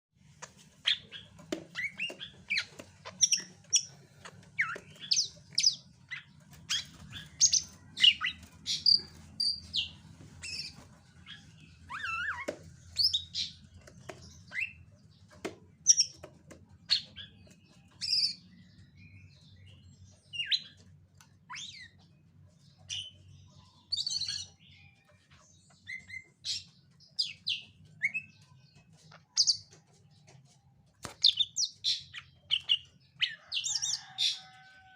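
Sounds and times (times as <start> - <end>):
bird chirping and whistling: 6.7 - 10.8, 11.8 - 13.5.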